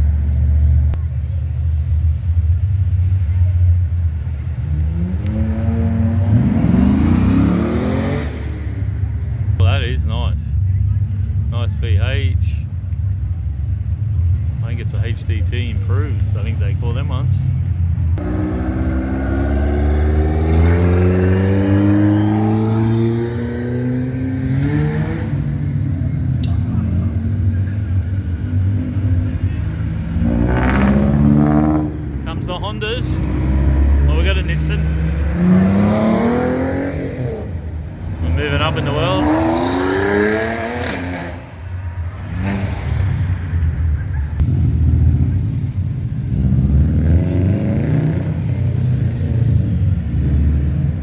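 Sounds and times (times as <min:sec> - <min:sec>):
car engine accelerating past: 0:04.7 - 0:09.2, 0:18.2 - 0:32.3, 0:33.1 - 0:45.5.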